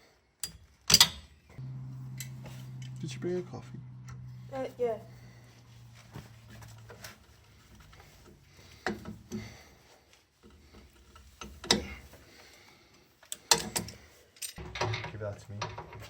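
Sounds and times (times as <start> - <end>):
tools and metal parts clicking: 0.4 - 1.3, 13.2 - 16.0.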